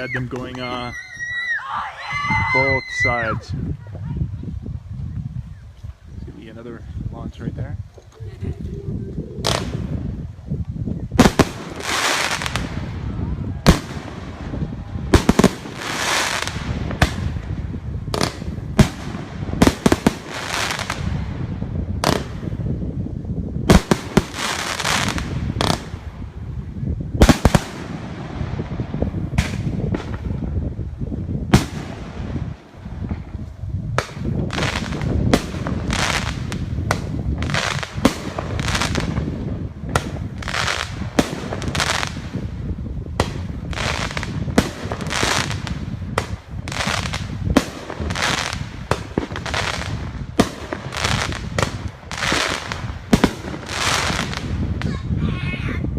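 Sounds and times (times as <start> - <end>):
fireworks crackling: 0.0 - 55.8
fireworks banging: 9.3 - 10.3, 11.1 - 22.8, 23.6 - 55.2.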